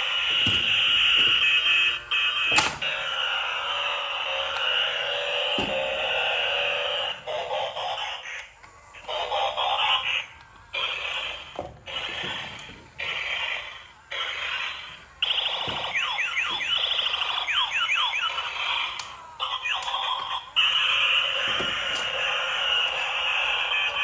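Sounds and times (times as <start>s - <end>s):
electronic toy sound effects: 0.0s - 24.0s
falling electronic chirps: 15.2s - 18.7s.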